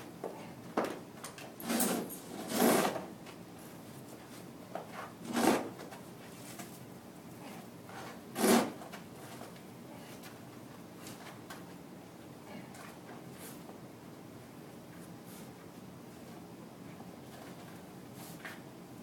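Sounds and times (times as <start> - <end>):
short scraping noises: 1.6 - 3.0, 5.0 - 5.8, 8.0 - 8.8.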